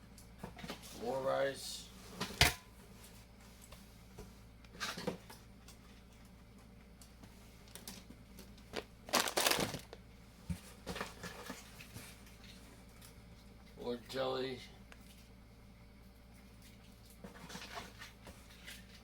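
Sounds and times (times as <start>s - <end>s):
cardboard and packaging rustling: 7.6s - 10.0s.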